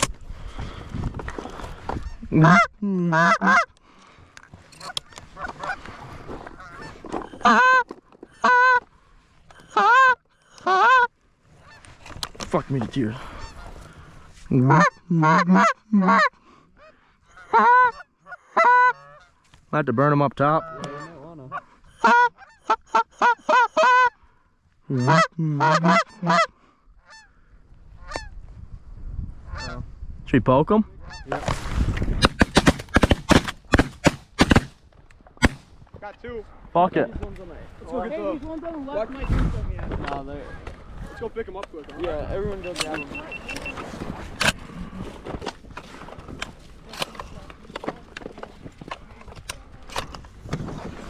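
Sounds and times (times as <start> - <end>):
goose honks: 2.1 - 3.7, 6.6 - 8.8, 9.6 - 11.8, 14.5 - 19.3, 20.6 - 24.2, 24.9 - 26.5.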